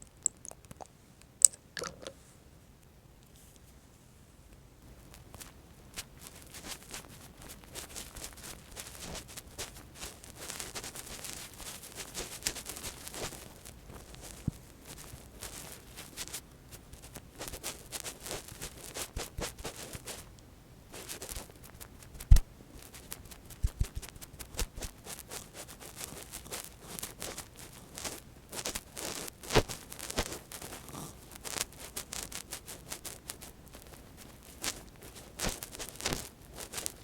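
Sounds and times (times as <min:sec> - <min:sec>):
soft scratching and rustling: 0:03.2 - 0:37.0.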